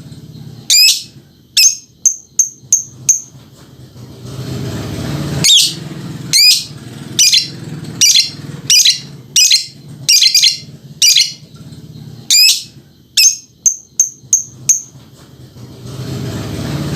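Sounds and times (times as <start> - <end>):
lovebird calling shrilly: 0.7 - 3.3, 5.4 - 11.4, 12.3 - 14.9.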